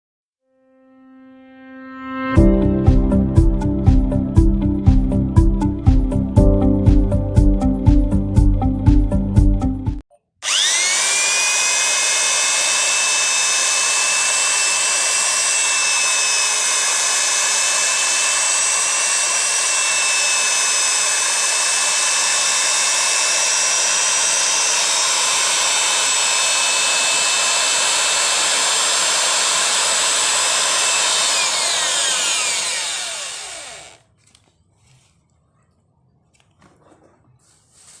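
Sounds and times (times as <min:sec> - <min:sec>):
small electric motor whining: 0:10.4 - 0:34.1.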